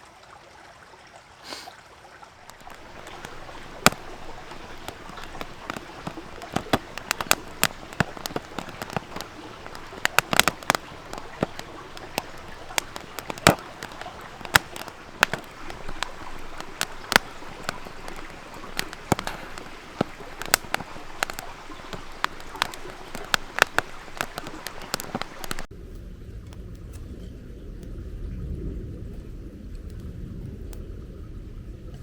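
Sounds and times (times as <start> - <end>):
campfire crackling and popping: 2.4 - 26.6
steady low rumble: 25.7 - 32.0.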